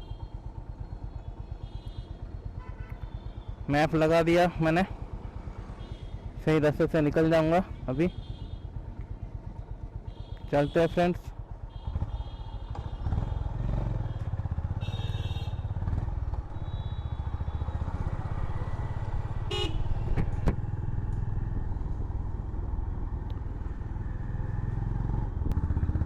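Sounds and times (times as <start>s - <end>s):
motorcycle engine riding: 0.0s - 26.0s.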